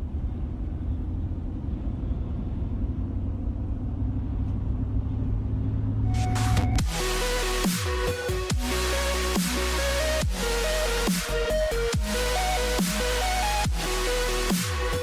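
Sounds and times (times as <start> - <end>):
car rumbling along road: 0.0 - 6.4
electronic music: 6.1 - 15.0.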